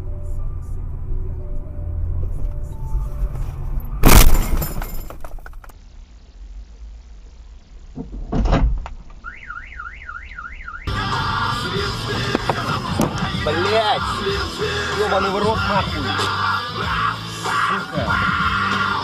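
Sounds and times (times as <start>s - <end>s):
heavy thud: 4.0s - 5.7s
vehicle collision impact: 4.0s - 5.7s
debris rattling: 4.0s - 5.8s
car alarm siren: 9.2s - 11.2s.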